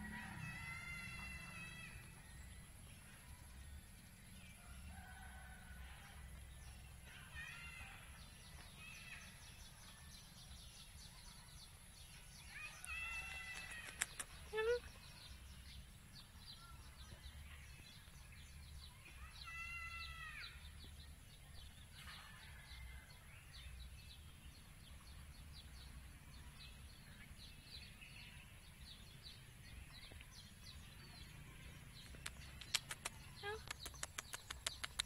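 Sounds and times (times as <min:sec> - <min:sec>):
small birds chirping: 0:06.4 - 0:22.6, 0:23.4 - 0:35.0.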